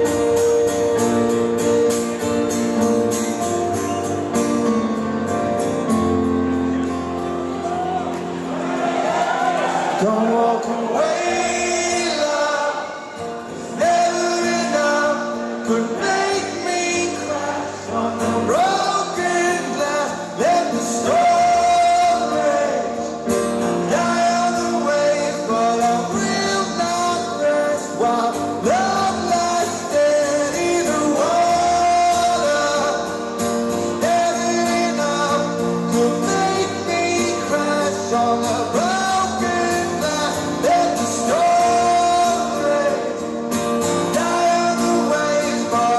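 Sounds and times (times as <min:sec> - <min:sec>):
live band playing slow rock: 0:00.0 - 0:45.9
person singing: 0:09.9 - 0:45.9.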